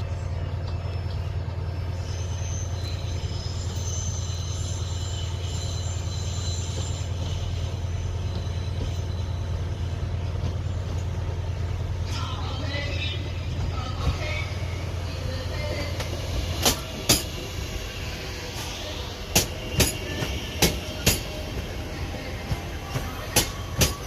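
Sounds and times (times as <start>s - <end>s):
train running hum: 0.0s - 24.0s
high-pitched wheel squeal: 2.0s - 9.6s.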